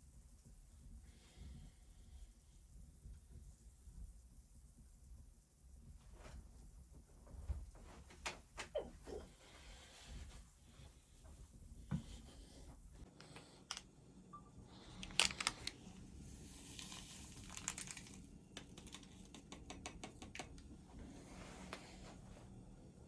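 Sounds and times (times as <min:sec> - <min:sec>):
light clicks and crackles: 0:06.0 - 0:09.3, 0:14.9 - 0:16.0, 0:16.6 - 0:20.8.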